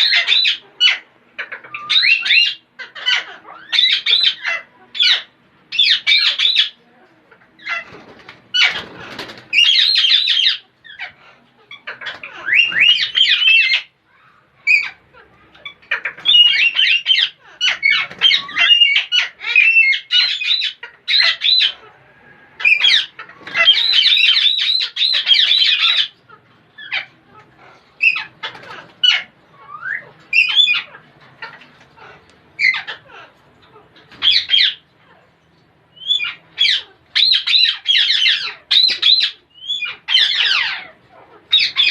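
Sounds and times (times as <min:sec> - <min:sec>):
parrots squawking: 0:00.0 - 0:41.9.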